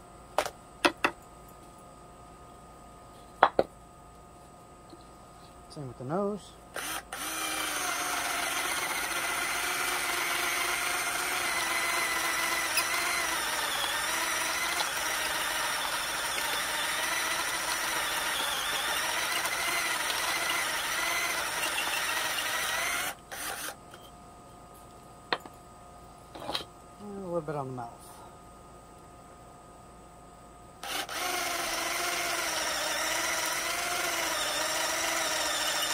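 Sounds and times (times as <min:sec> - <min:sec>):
power drill boring wood: 0:06.8 - 0:24.0, 0:30.8 - 0:35.9.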